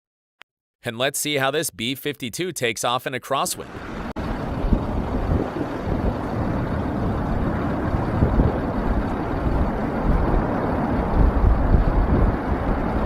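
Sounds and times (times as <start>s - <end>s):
jet engines roaring: 3.5s - 13.0s
wind buffeting microphone: 3.7s - 13.0s.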